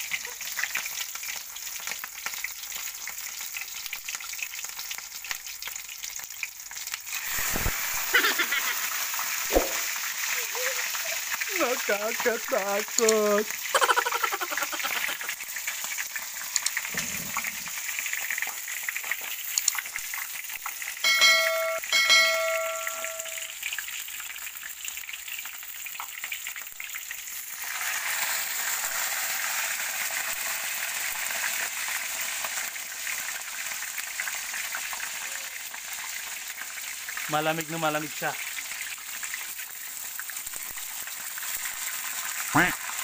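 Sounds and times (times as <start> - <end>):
deep-frying sizzle: 0.0 - 43.0
short ringing tones: 21.0 - 23.5.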